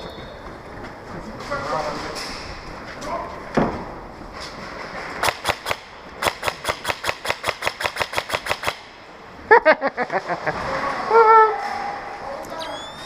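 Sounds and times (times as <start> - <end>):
airsoft gun shots: 5.2 - 9.0.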